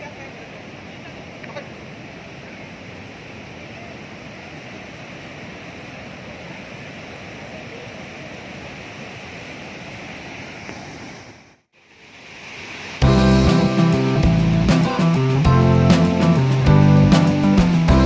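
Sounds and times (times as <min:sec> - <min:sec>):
waterfall rushing: 0:00.0 - 0:11.0, 0:11.8 - 0:18.0
guitar music: 0:13.0 - 0:18.0.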